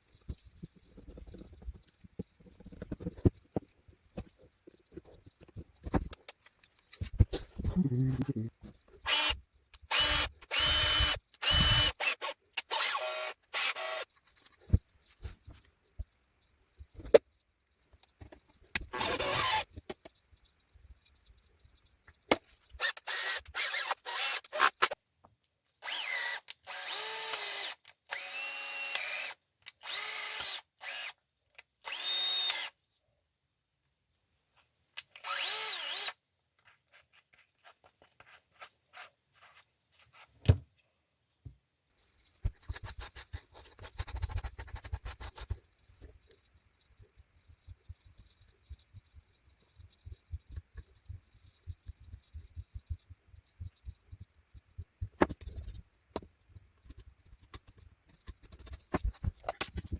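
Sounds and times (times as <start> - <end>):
cordless drill motor whining: 9.1 - 14.0, 18.9 - 19.6, 22.8 - 24.9, 25.8 - 31.1, 35.2 - 36.2.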